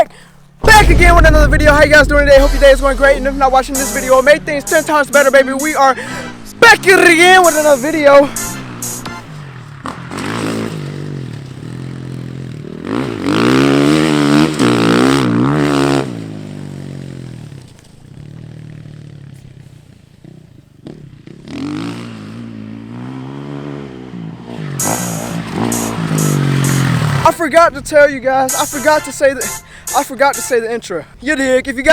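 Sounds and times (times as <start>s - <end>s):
dirt bike engine revving: 2.0s - 17.1s, 21.2s - 27.3s.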